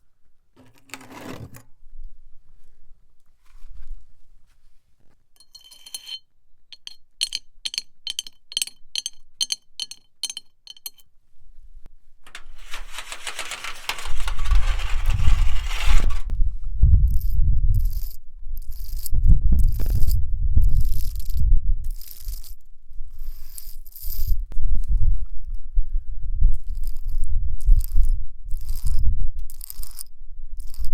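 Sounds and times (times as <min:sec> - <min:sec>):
nails scraping a thin plate: 0:00.6 - 0:01.7, 0:05.4 - 0:06.2, 0:12.3 - 0:16.3
nails tapping a flower pot: 0:06.8 - 0:11.0.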